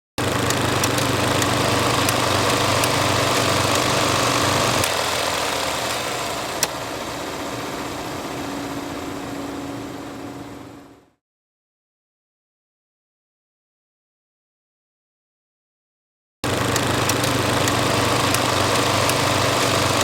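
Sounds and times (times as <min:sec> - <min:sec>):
film projector whirring: 0:00.2 - 0:11.2, 0:16.4 - 0:20.0
sharp click: 0:00.4 - 0:05.0, 0:16.7 - 0:20.0.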